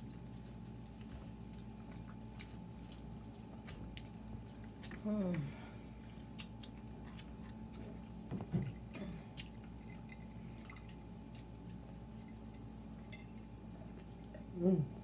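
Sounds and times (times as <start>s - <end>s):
pizza being chewed: 0.0s - 14.8s
low vocal sound: 14.4s - 15.0s.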